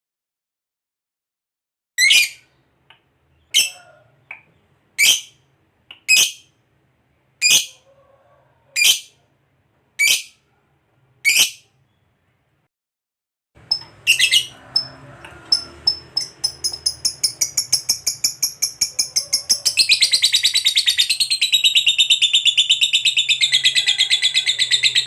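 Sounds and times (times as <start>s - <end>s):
lovebird high-pitched calls: 2.0s - 2.4s, 3.4s - 3.8s, 5.0s - 5.4s, 6.1s - 6.5s, 7.4s - 7.8s, 8.8s - 9.1s, 10.0s - 10.4s, 11.2s - 11.7s, 13.7s - 25.0s.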